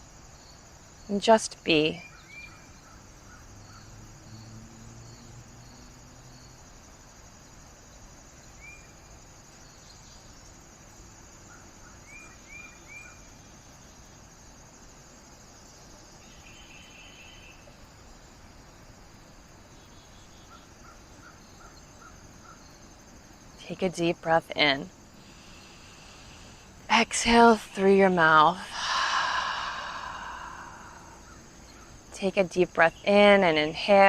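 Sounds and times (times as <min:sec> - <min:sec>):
insects trilling: 0:00.0 - 0:34.0
faint low hum: 0:23.3 - 0:34.0.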